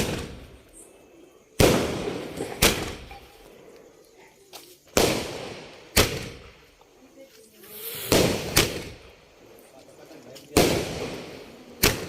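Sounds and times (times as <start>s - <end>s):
firecracker bangs with echo: 0.0s - 0.5s, 1.6s - 3.2s, 5.0s - 6.6s, 8.1s - 9.1s, 10.5s - 12.0s.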